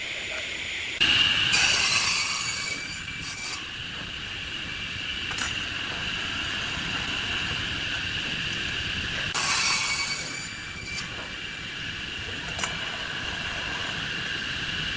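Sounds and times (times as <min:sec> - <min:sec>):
tool hissing cutting wood: 0:00.9 - 0:14.9.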